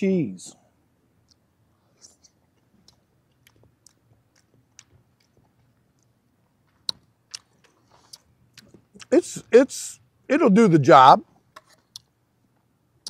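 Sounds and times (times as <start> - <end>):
man chewing food: 1.0 - 9.5, 11.4 - 13.0.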